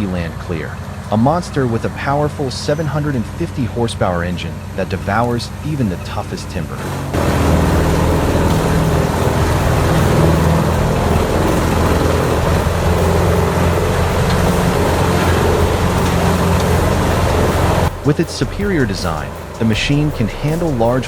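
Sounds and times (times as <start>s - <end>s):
grinder engine running under load: 0.0s - 21.0s
machine grinding timber: 6.7s - 21.0s.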